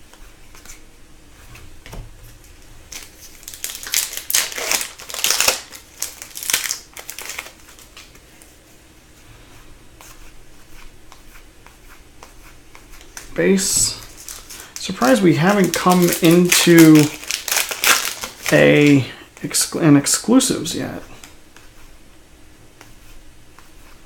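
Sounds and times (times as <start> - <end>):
foil wrapper crinkling: 2.9 - 8.1, 13.6 - 19.0.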